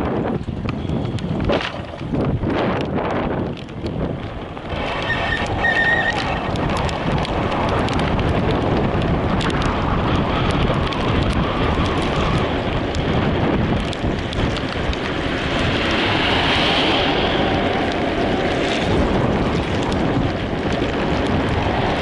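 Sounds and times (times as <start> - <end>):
vehicle road and wind noise: 0.0 - 22.0
light ticks and clicks: 2.7 - 9.8.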